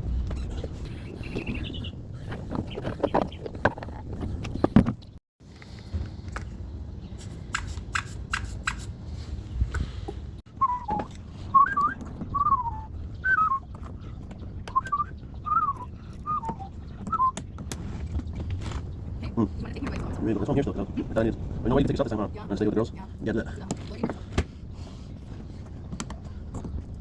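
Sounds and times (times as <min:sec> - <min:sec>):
person whistling a tune: 0:10.6 - 0:13.6, 0:14.7 - 0:17.4.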